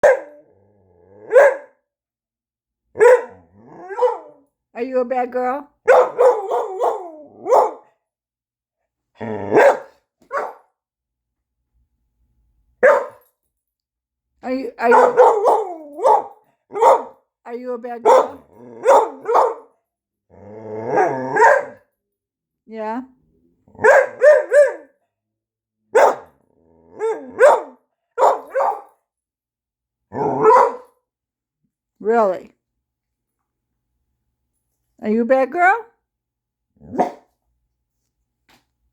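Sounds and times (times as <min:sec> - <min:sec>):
dog yowling barks: 0:00.0 - 0:00.5, 0:01.2 - 0:01.8, 0:03.0 - 0:04.4, 0:05.8 - 0:07.9, 0:09.5 - 0:10.6, 0:12.8 - 0:13.2, 0:14.8 - 0:17.2, 0:18.0 - 0:19.7, 0:20.9 - 0:21.8, 0:23.8 - 0:25.0, 0:26.0 - 0:26.4, 0:27.0 - 0:28.9, 0:30.1 - 0:30.9, 0:36.9 - 0:37.3
dog vocal calls: 0:14.9 - 0:17.1.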